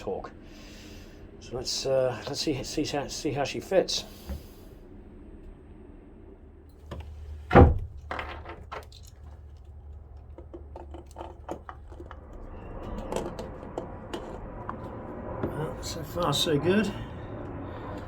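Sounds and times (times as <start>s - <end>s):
metal knocks and clicks: 6.9s - 14.8s
light taps and scrapes: 10.2s - 15.0s.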